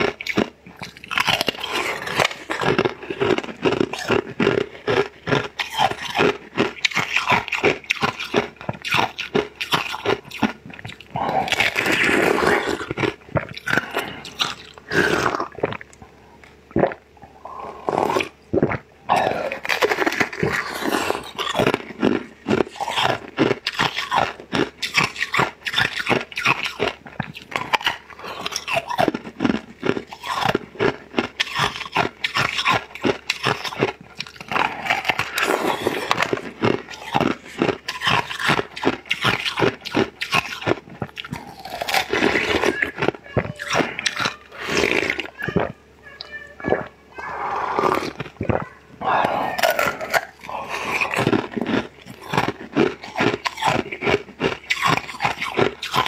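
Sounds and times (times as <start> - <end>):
crunchy chewing: 0.0 - 45.8, 46.7 - 56.0
slurps: 10.8 - 15.9.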